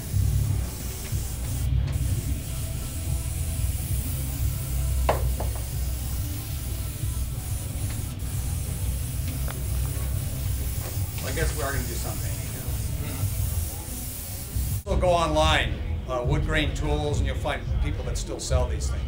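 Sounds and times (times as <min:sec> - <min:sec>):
spray gun air hiss: 0:00.0 - 0:14.8.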